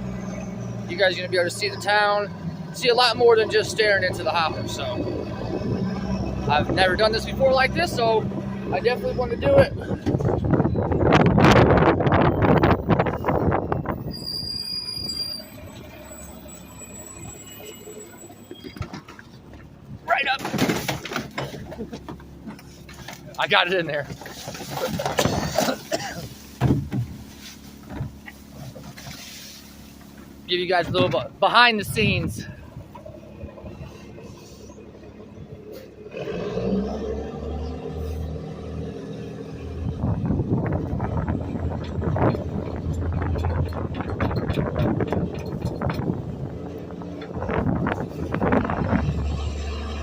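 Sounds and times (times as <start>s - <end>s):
garbage truck rumble and clatter: 0.0s - 50.0s
high-pitched squeal: 12.2s - 19.0s.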